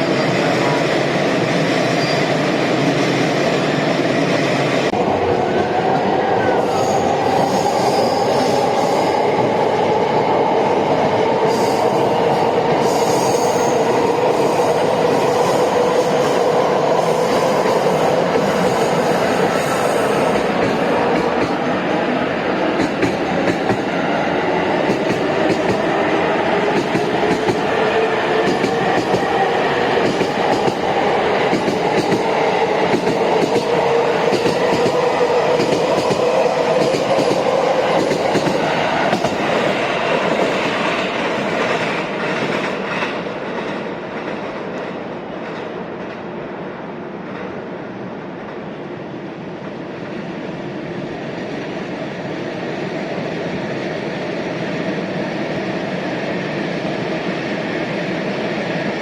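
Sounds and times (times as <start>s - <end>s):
train wheels clicking over rails: 11.2s - 46.4s.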